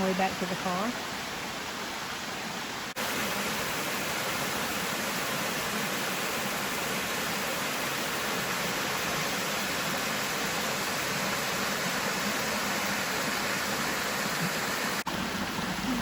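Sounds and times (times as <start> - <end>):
waterfall and creek rushing: 0.0 - 16.0.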